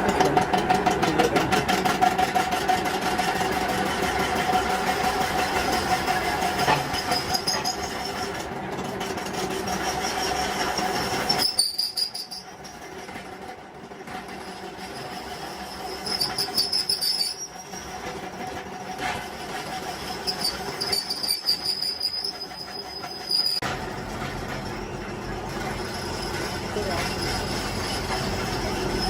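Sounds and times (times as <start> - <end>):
metal-on-metal squealing: 0.0 - 29.0
steady mechanical hum: 22.6 - 29.0.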